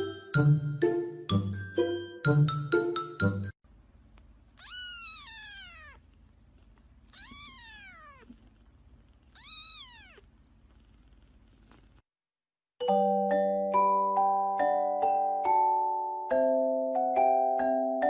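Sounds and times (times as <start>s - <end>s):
cat meowing: 4.6s - 6.1s, 7.1s - 8.4s, 9.3s - 10.3s.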